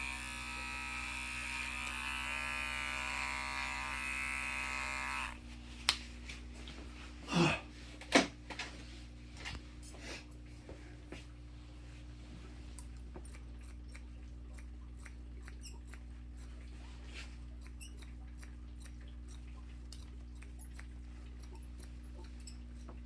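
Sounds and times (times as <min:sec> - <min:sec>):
electric hair clipper humming: 0:00.0 - 0:05.4
small clicks and snips: 0:12.8 - 0:16.6, 0:17.6 - 0:23.0.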